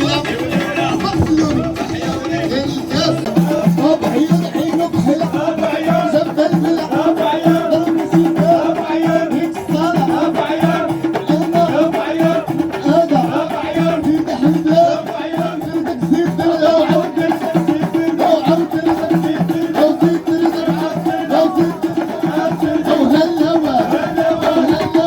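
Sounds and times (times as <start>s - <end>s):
low pulsing beat: 0.0s - 6.5s.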